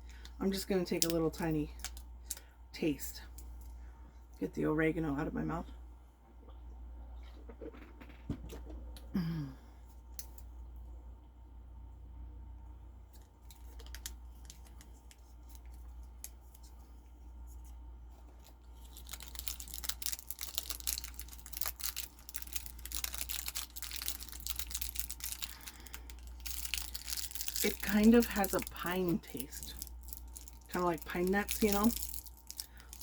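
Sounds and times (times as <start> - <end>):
paper wrapper crinkling: 13.4 - 16.8, 18.2 - 33.0.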